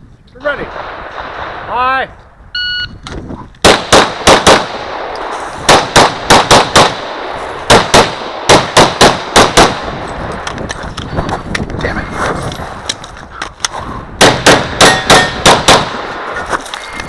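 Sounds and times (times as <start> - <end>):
pistol firing rapid shots: 3.6 - 5.1, 5.7 - 10.0, 14.2 - 16.2.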